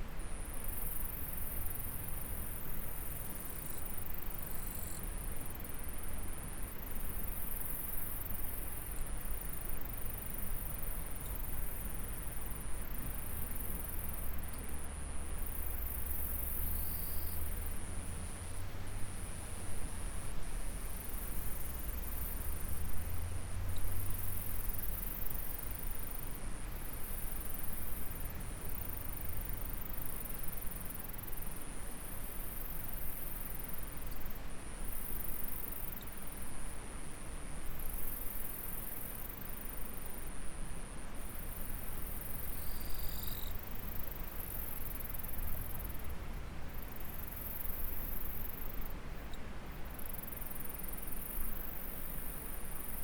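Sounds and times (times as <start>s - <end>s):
insects trilling: 41.3s - 46.0s.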